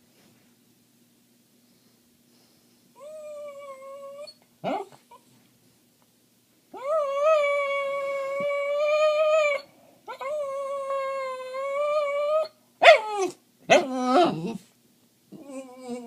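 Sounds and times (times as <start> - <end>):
dog howling: 6.8 - 14.6, 15.4 - 16.0.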